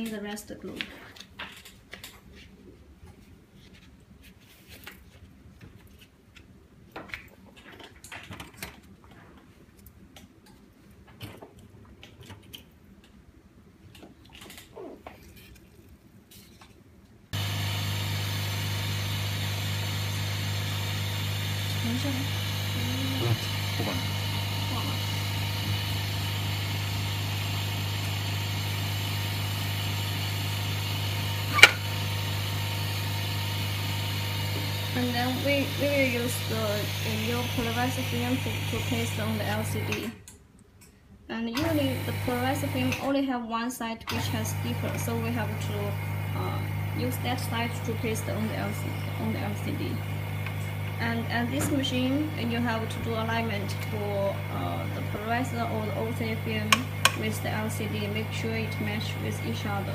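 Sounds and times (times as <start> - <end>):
vacuum pump droning: 17.4 - 40.2, 41.6 - 43.1, 44.1 - 59.9.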